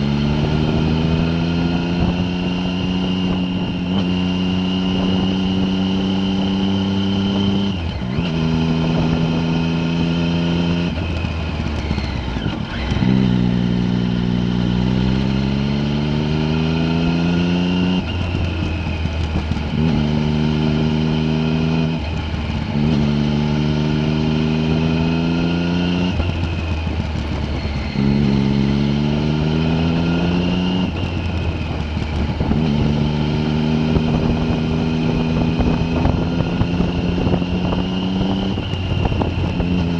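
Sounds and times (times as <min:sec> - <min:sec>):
vehicle engine revving: 0:00.0 - 0:39.9.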